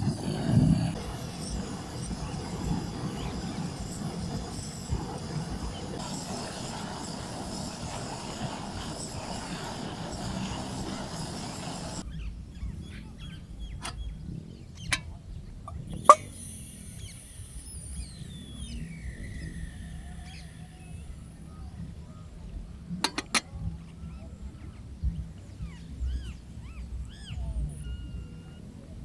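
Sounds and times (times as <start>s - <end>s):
wind rumbling on microphone: 0.0s - 29.0s
sharp clicks and knocks: 23.0s - 23.5s.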